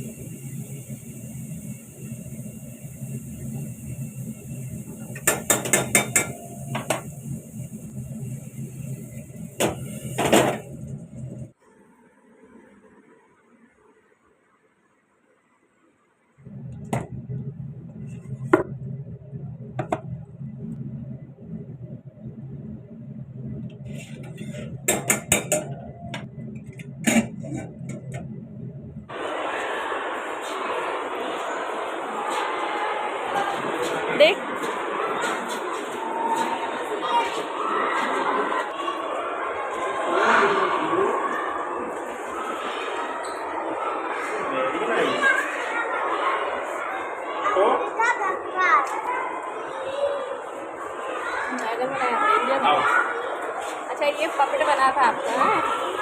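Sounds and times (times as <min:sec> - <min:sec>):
mechanical hum: 0:00.0 - 0:14.2, 0:16.3 - 0:47.4.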